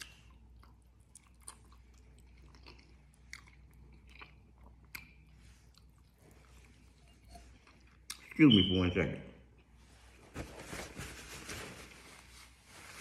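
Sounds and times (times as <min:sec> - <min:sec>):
wet chewing smacks and clicks: 0:00.0 - 0:06.8.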